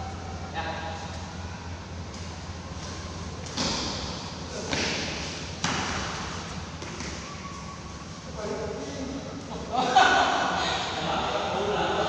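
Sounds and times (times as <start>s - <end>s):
sharp smacks echoing in a hall: 2.8s - 7.3s.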